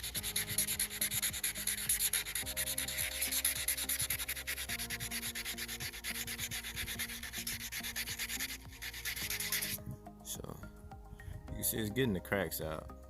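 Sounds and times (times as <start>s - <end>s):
sandpaper rubbing strokes: 0.0s - 9.8s.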